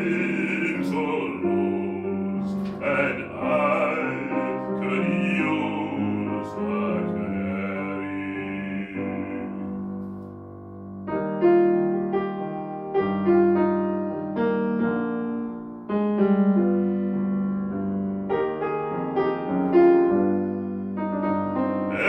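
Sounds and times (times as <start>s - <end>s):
person singing: 0.0s - 10.0s
piano chords and melody: 0.0s - 22.0s.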